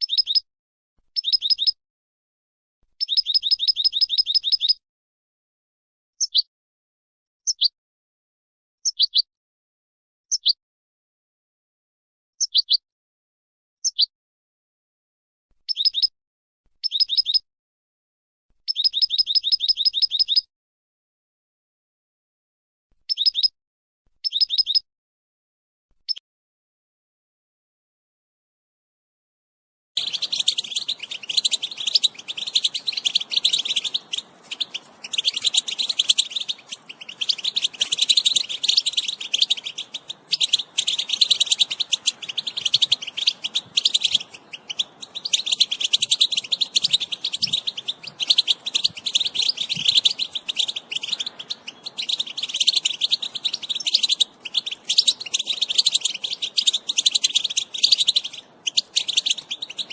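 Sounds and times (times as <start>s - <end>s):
goldfinches twittering: 3.0s - 4.8s, 30.0s - 59.9s.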